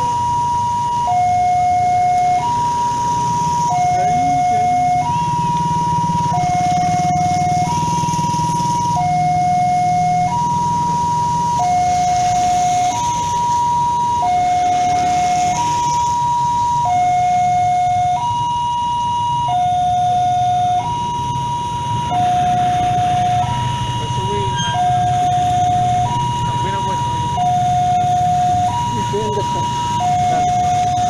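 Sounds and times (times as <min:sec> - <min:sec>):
two-tone level crossing alarm: 0:00.0 - 0:31.0.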